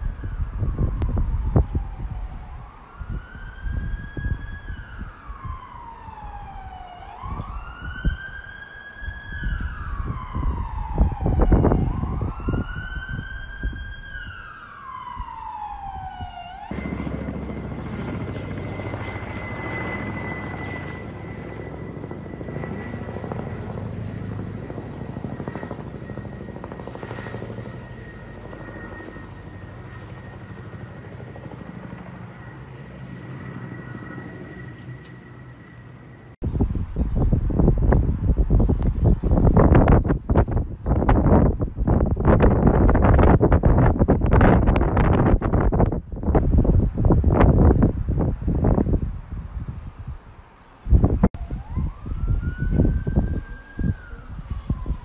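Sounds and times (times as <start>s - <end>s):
siren wailing: 0.0s - 36.4s, 51.0s - 55.0s
steady rumbling noise: 36.0s - 50.3s.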